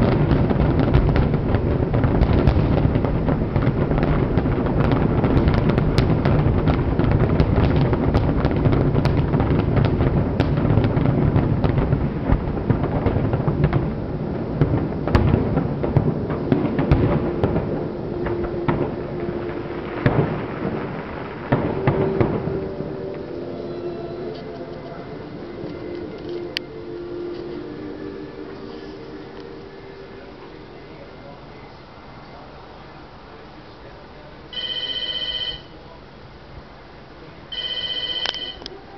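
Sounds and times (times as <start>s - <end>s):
fireworks booming and crackling: 0.0s - 38.9s
steady tone: 16.6s - 32.5s.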